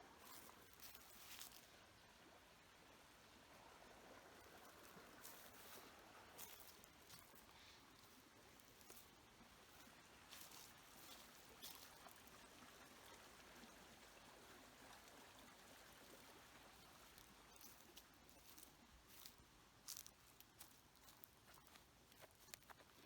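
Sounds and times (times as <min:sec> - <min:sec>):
faint clicks and rustles: 0:16.1 - 0:23.0.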